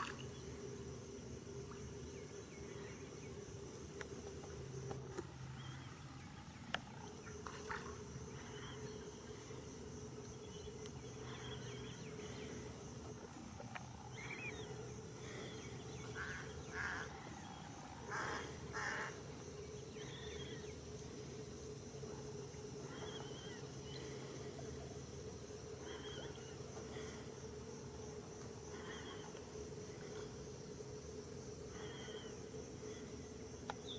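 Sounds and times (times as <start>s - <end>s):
high insect drone: 0.0s - 33.9s
wetland birds calling: 14.1s - 19.1s.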